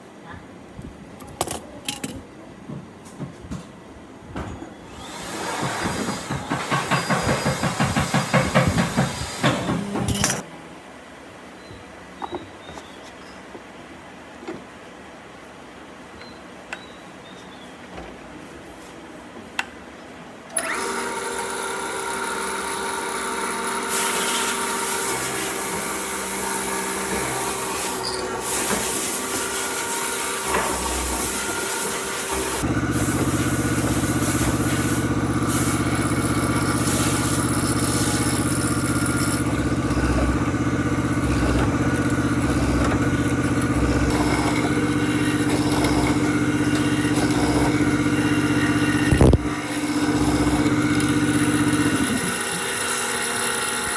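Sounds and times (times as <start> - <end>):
electric power tool motor: 20.6 - 53.9.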